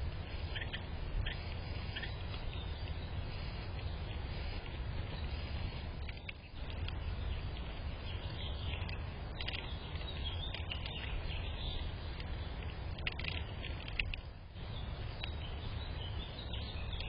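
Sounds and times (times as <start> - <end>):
low outdoor rumble: 0.0 - 17.0
high bird chirps: 0.4 - 3.2, 6.0 - 11.9.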